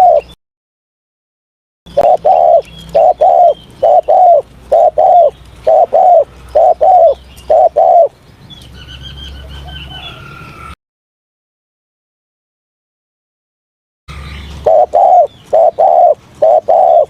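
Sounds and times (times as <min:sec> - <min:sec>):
dove cooing: 0:00.0 - 0:00.3, 0:01.9 - 0:08.1, 0:14.1 - 0:17.0.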